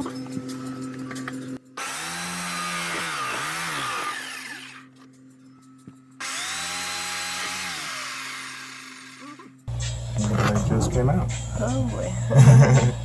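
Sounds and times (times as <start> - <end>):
electric jigsaw running: 1.8 - 4.9, 6.2 - 9.6.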